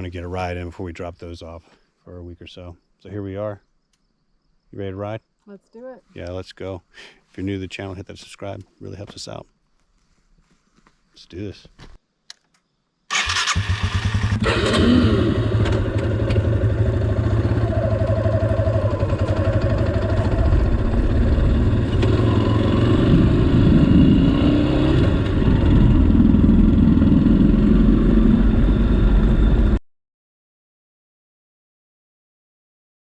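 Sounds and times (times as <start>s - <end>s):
motorcycle engine running: 13.2s - 29.7s.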